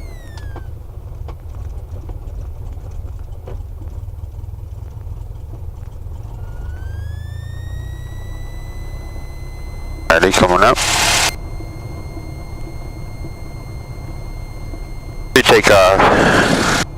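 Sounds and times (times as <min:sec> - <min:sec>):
thin whine: 0:00.0 - 0:01.0, 0:06.1 - 0:16.9
aircraft engine idling: 0:00.0 - 0:16.9.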